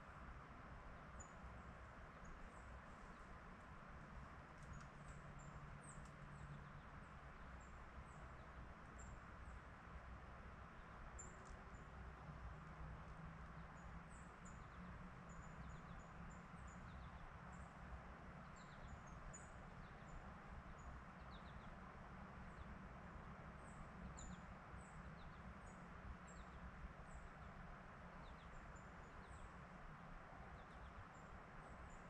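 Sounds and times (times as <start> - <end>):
low background hiss and rumble: 0.0 - 32.0
small birds chirping: 13.5 - 17.7, 18.4 - 21.8.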